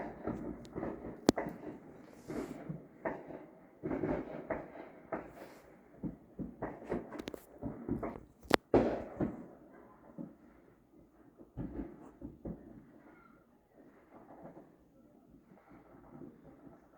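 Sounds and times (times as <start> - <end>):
fireworks pops and bangs: 0.0 - 13.1, 13.8 - 16.9.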